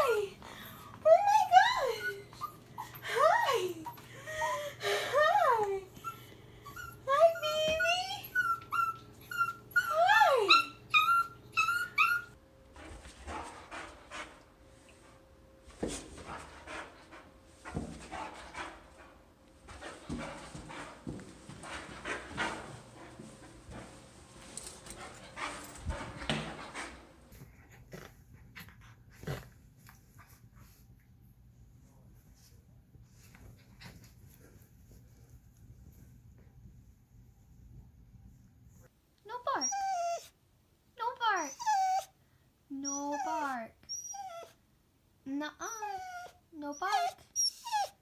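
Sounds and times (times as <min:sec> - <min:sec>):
dog whining: 0:06.0 - 0:12.4, 0:39.6 - 0:40.3, 0:41.4 - 0:42.2, 0:42.8 - 0:44.6, 0:45.7 - 0:48.0
dog panting: 0:12.8 - 0:15.2, 0:15.8 - 0:30.9.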